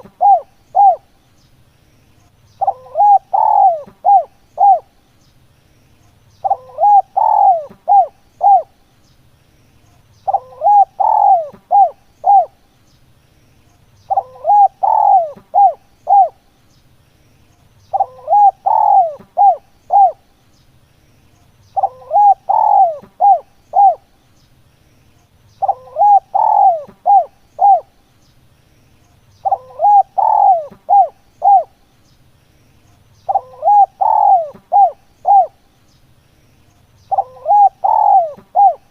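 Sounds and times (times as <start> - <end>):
dove cooing: 0.0 - 1.2, 2.6 - 4.9, 6.4 - 8.8, 10.2 - 12.6, 14.1 - 16.4, 17.9 - 20.3, 21.7 - 24.1, 25.6 - 28.0, 29.4 - 31.8, 33.2 - 35.6, 37.1 - 38.9.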